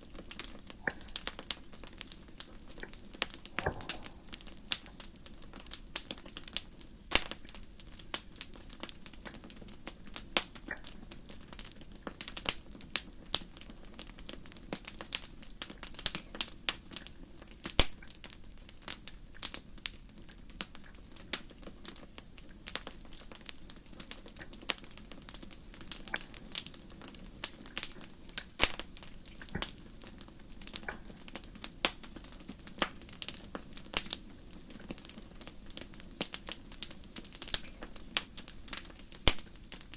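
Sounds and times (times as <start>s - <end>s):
low steady hum: 0.0s - 7.9s
fire crackling and popping: 0.0s - 39.9s.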